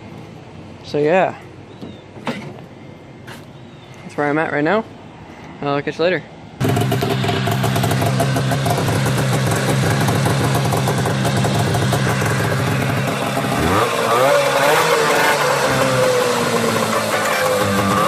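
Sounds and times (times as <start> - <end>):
snowmobile engine idling and revving: 6.6 - 18.0.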